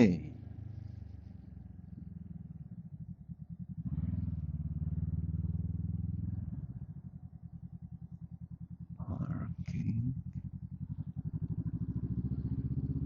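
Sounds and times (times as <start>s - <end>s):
motorcycle engine pulsing: 0.0s - 13.0s.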